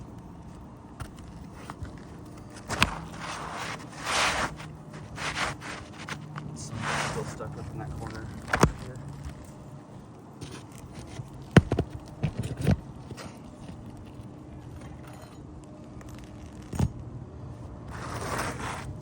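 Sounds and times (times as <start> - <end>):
scraping rustle of shingles: 1.4 - 9.4, 17.9 - 19.0.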